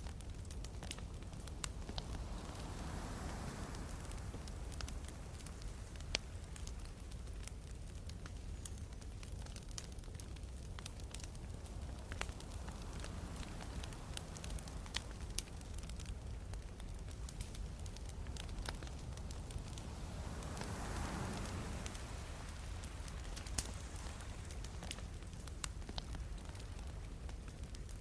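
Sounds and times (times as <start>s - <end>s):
campfire crackling and popping: 0.0s - 28.0s
sea surf rumble: 1.3s - 6.7s, 11.6s - 16.2s, 17.0s - 27.0s.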